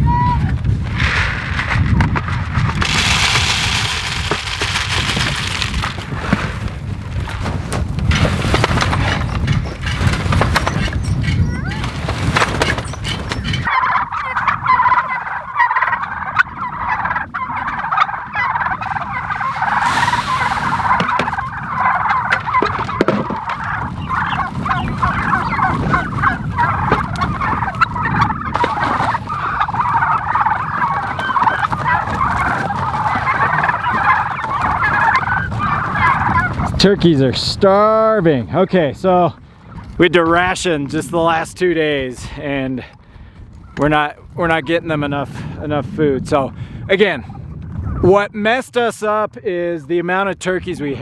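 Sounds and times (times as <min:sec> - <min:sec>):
flock of turkeys calling: 0:02.6 - 0:06.1, 0:08.8 - 0:36.8.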